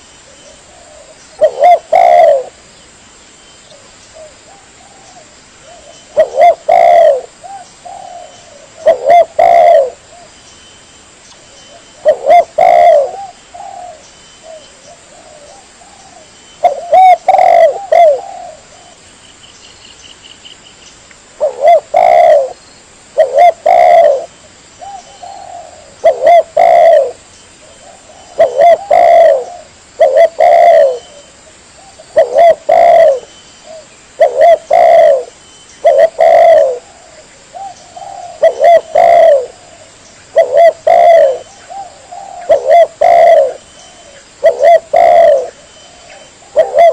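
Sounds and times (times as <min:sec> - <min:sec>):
dove cooing: 0:00.0 - 0:02.6, 0:03.7 - 0:10.3, 0:11.7 - 0:19.0, 0:21.4 - 0:22.6, 0:23.2 - 0:46.9.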